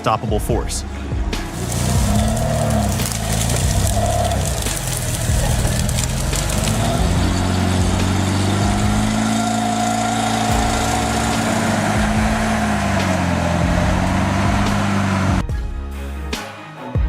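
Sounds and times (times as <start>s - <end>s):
truck engine under load: 1.2s - 15.4s.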